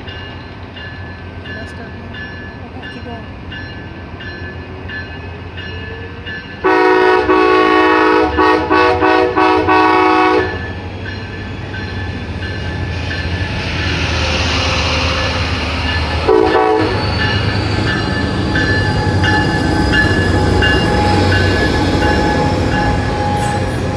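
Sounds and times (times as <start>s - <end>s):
train rumbling past: 0.0s - 23.9s
train horn chord: 6.6s - 10.7s, 14.0s - 23.9s
train wheel squeal: 9.8s - 23.9s.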